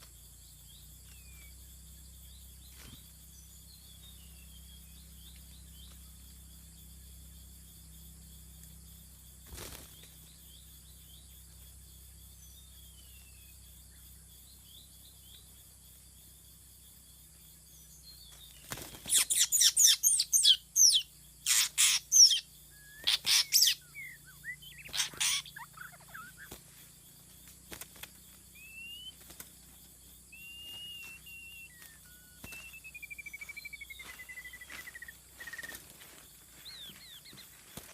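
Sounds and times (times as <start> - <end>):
songbird chirps: 0.0 - 37.9
harsh bird calls: 19.0 - 26.9, 30.4 - 35.9, 36.5 - 37.9
thin bird whistles: 19.2 - 26.5, 30.4 - 35.8.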